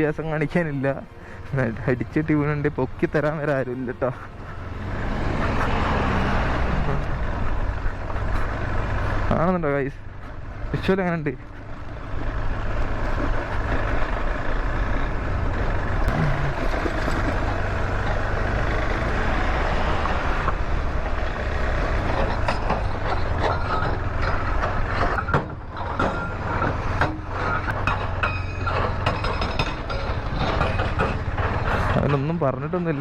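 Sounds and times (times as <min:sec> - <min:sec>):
motorcycle engine running: 0:00.0 - 0:33.0
clatter of knocks and rattles: 0:20.2 - 0:33.0.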